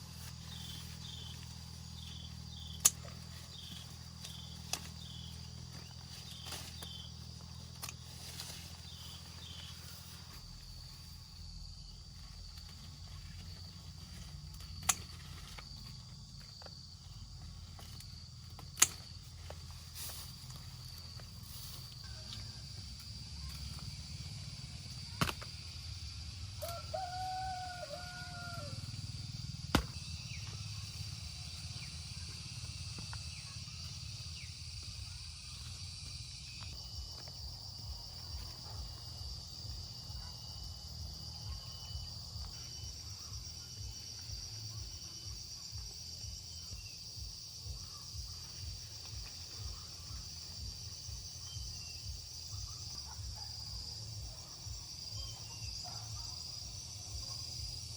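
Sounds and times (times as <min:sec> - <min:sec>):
constant low rumble: 0:00.0 - 0:57.9
insects droning: 0:00.0 - 0:57.9
rooster crowing: 0:26.6 - 0:29.0.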